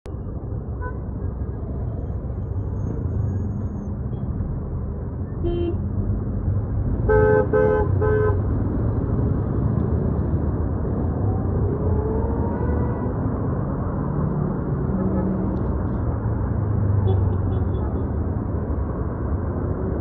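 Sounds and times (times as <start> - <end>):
road traffic rumble: 0.0 - 20.0
car horn honking: 5.4 - 5.8, 7.1 - 8.4.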